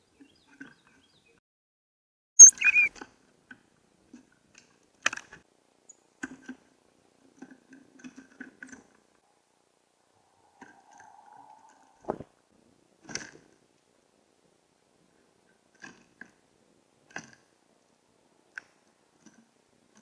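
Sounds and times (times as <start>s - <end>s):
titmouse high call: 2.4s - 2.9s.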